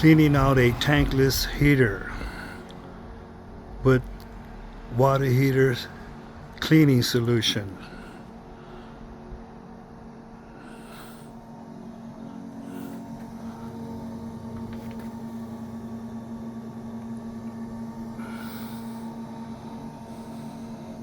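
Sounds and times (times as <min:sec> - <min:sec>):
electric pump humming: 0:00.0 - 0:21.0.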